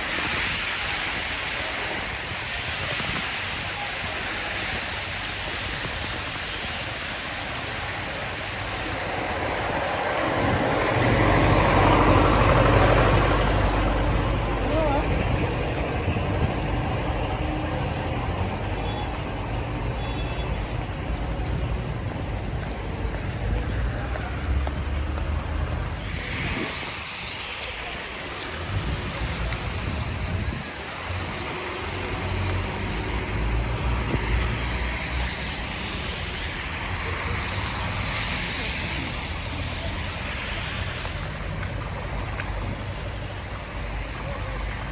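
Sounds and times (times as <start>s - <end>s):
distant traffic: 0.0s - 44.9s
wind: 0.0s - 44.9s.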